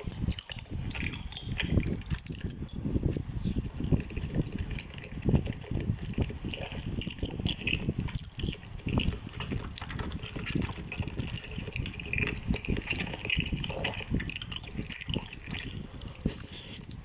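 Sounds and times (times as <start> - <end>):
wet chewing and slurping: 0.0 - 17.0.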